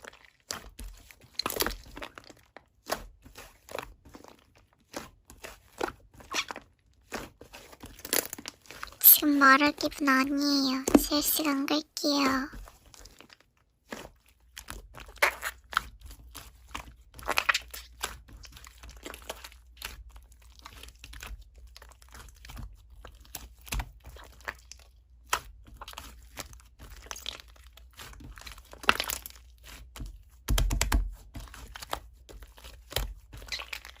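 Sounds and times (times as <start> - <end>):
slime squished by hand: 0.1 - 8.2, 15.0 - 21.4, 30.4 - 34.0.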